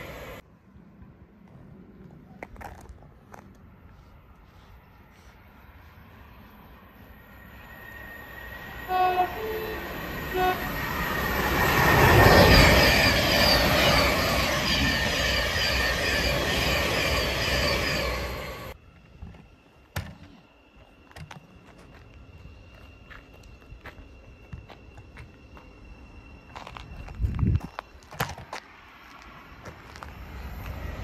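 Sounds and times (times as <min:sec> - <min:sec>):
two-tone train horn: 0:08.8 - 0:11.2.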